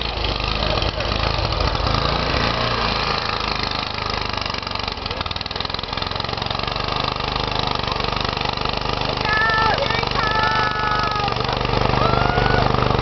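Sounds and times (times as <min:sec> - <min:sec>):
snow blower engine running: 0:00.0 - 0:13.0.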